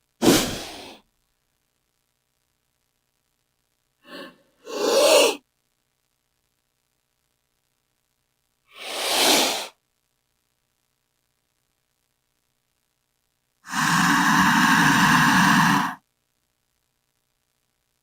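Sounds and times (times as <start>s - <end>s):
snake hissing: 0.2s - 1.0s, 4.0s - 5.4s, 8.7s - 9.8s, 13.6s - 16.0s.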